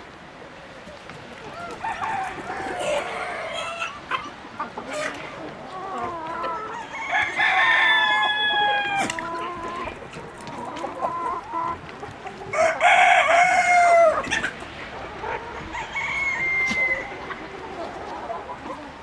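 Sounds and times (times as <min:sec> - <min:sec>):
hens clucking: 0:00.0 - 0:19.0
rooster crowing: 0:01.5 - 0:04.0, 0:06.6 - 0:09.2, 0:12.5 - 0:14.2, 0:15.6 - 0:17.3.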